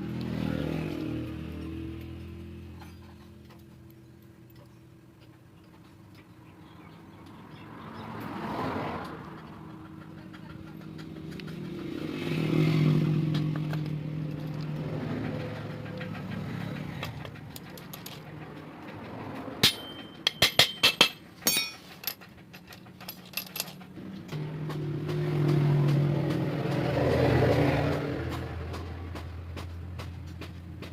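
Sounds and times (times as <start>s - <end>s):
engine humming: 0.0s - 30.9s
sharp metallic clinks: 1.5s - 5.0s, 19.6s - 23.9s.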